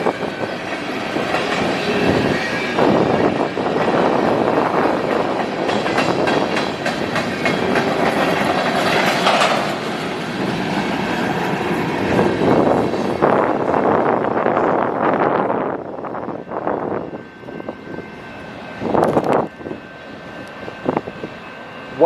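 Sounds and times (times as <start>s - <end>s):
train wheels clacking: 0.0s - 13.2s
train rolling rumble: 0.0s - 22.0s.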